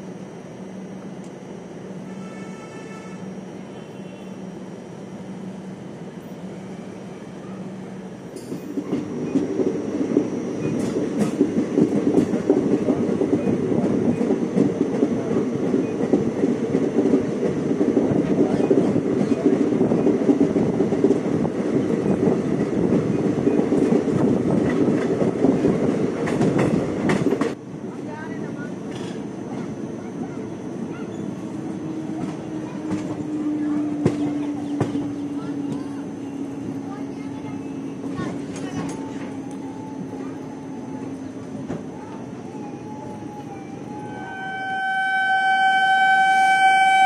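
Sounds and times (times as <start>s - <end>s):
train wheels clattering on track: 8.3s - 27.6s, 28.9s - 29.8s, 31.0s - 39.6s.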